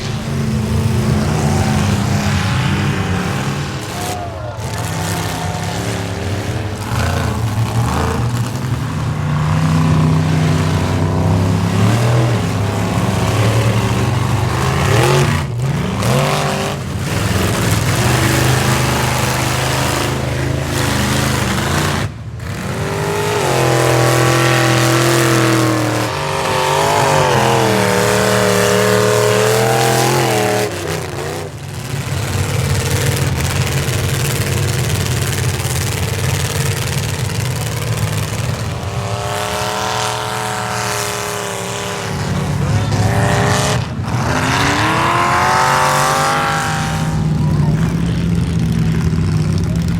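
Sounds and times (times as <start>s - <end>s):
pickup truck engine revving hard: 0.0s - 49.9s.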